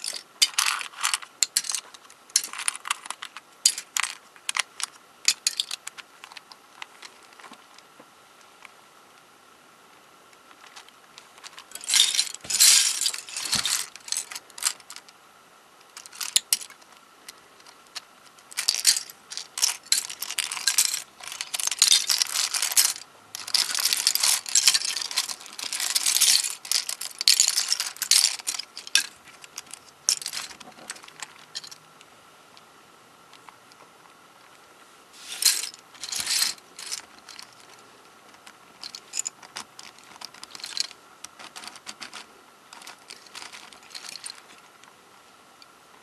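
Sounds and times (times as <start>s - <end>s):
plastic puzzle pieces clicking: 18.3s - 31.8s, 38.3s - 44.6s.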